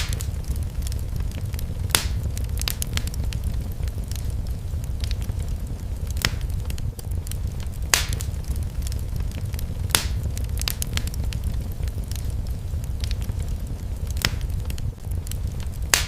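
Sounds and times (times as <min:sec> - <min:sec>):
fire low rumble: 0:00.0 - 0:16.0
fire pops and snaps: 0:00.0 - 0:16.0.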